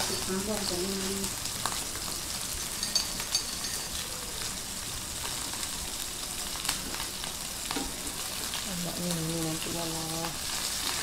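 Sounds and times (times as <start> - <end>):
food sizzling in hot oil: 0.0 - 11.0
metal utensil clinking on pan: 2.6 - 4.0.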